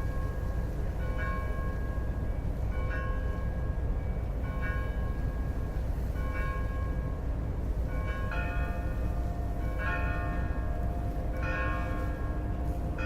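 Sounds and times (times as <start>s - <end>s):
bells ringing: 0.0s - 5.5s, 6.2s - 13.0s
steady low rumble: 7.0s - 13.0s.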